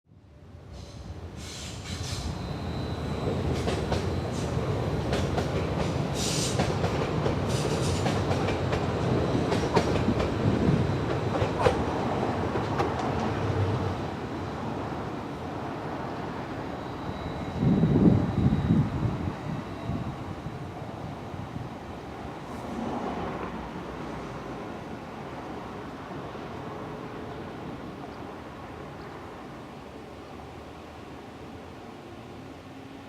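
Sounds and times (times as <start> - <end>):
train wheels clicking over rail joints: 3.2 - 13.5.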